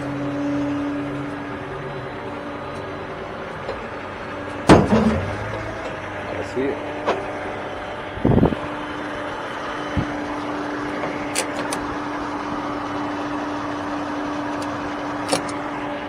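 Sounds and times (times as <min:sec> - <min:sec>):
vehicle humming: 0:00.0 - 0:16.0
heavy thump: 0:04.6 - 0:05.5.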